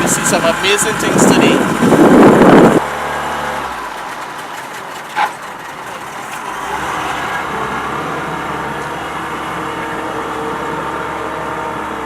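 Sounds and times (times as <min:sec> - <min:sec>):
boat motor running: 0:00.0 - 0:12.0.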